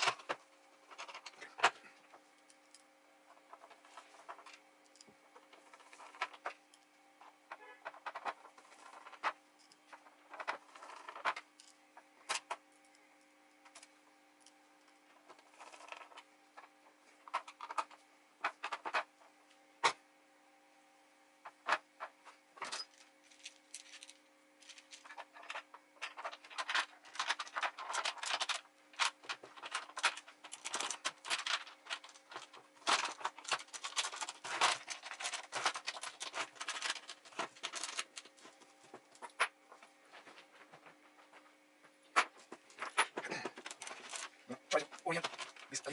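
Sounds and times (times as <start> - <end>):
plastic parts clicking and knocking: 0.0 - 11.7, 12.3 - 12.6, 15.2 - 19.1, 21.5 - 41.4, 42.1 - 45.9
faint steady hum: 0.0 - 45.9.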